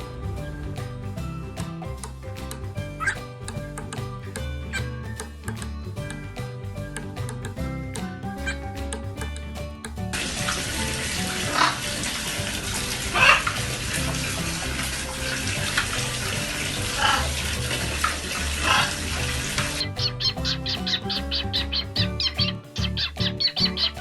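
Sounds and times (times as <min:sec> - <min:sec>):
light background music: 0:00.0 - 0:24.0
running water hissing: 0:10.2 - 0:19.9.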